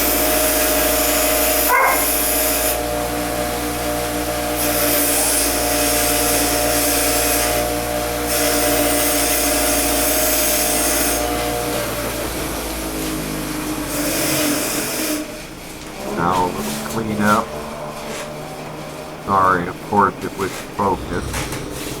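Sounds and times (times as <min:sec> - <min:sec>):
wire wheel whining: 0:02.6 - 0:19.9
bristles scrubbing metal: 0:13.9 - 0:20.8.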